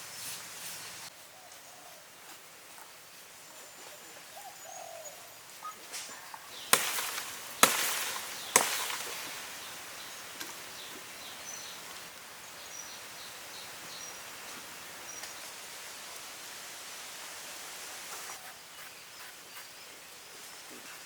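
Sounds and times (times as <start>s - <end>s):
sharp knocks with rushing decay: 6.6s - 9.8s.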